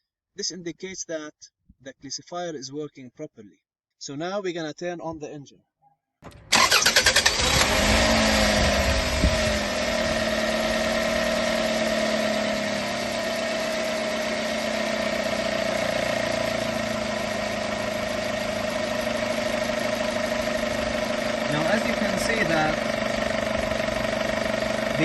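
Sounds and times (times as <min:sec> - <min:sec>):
car engine idling: 0:06.2 - 0:25.0
starter motor cranking: 0:06.2 - 0:25.0.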